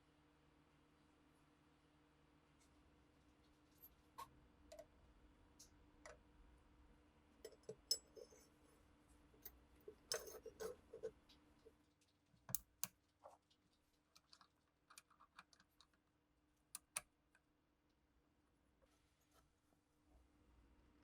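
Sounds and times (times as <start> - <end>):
small metal parts clicking: 9.4 - 11.1.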